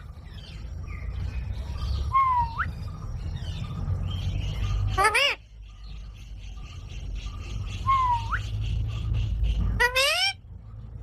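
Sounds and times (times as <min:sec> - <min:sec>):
parrot squawk: 0:04.9 - 0:05.4, 0:09.6 - 0:10.4.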